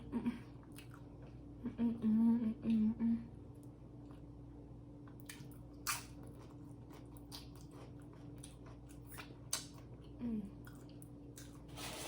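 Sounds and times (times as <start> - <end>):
person chewing food: 0.6 - 1.5, 5.0 - 11.7.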